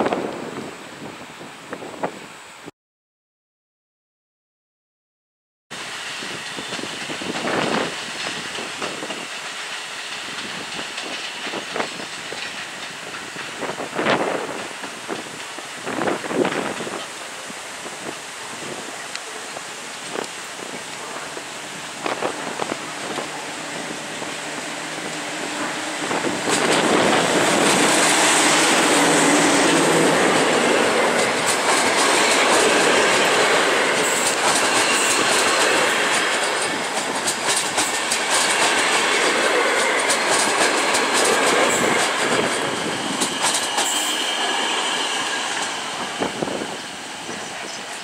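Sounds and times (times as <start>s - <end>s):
train rumbling past: 5.8s - 48.0s
wheels clicking over rail joints: 25.0s - 44.2s
high wheel squeal: 42.6s - 47.4s.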